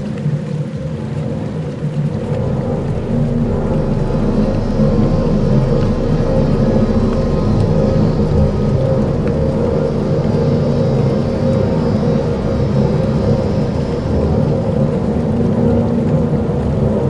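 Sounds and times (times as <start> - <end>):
deep ambient drone: 0.0 - 17.0
held synth tones: 2.1 - 15.6.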